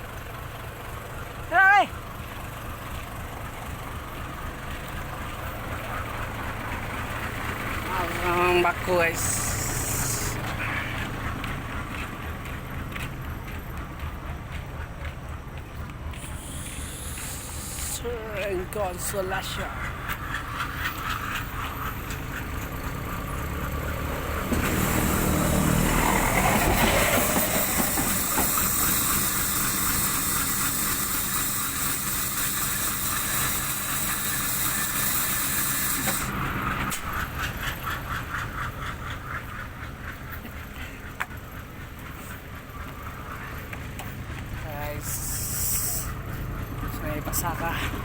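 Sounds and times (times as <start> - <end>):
truck engine running: 0.0 - 48.0
loud hiss: 9.1 - 10.4, 16.2 - 18.1, 45.0 - 46.2.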